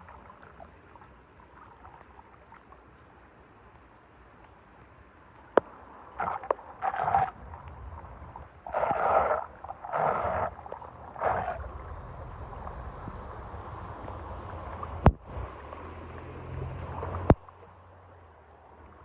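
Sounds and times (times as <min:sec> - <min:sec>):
water rushing: 0:05.1 - 0:19.0.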